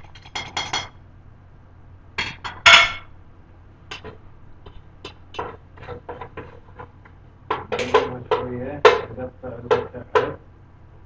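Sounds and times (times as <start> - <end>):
metal utensils clinking on pot: 0.0 - 0.9, 7.5 - 10.4.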